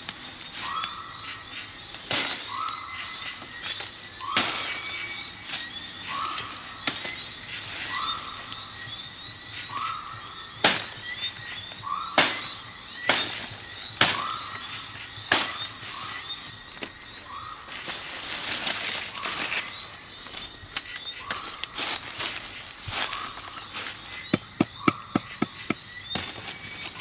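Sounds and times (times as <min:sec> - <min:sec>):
bird chirping: 0:00.3 - 0:27.0
rustling: 0:13.1 - 0:24.2
sharp knocks: 0:24.3 - 0:26.4.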